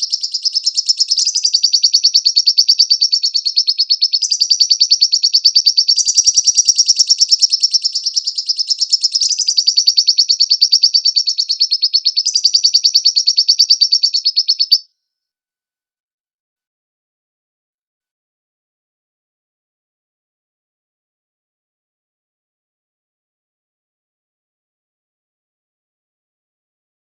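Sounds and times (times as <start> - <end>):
lovebird chattering trill: 0.0 - 14.8.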